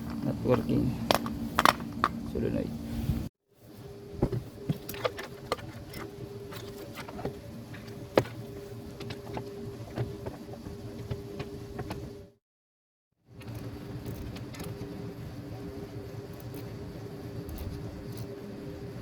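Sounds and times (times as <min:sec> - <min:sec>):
faint hum: 0:00.0 - 0:12.2.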